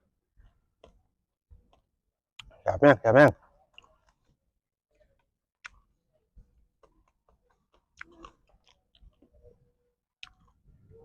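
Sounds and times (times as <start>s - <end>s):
quiet eating clicks and knocks: 0.4s - 2.6s, 3.4s - 9.4s, 10.2s - 10.6s.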